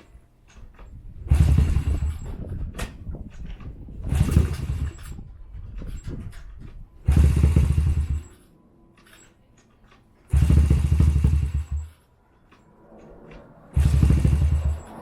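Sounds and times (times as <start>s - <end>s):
small engine revving bursts: 1.3s - 2.4s, 4.0s - 5.2s, 7.1s - 8.4s, 10.3s - 12.0s, 13.1s - 15.0s.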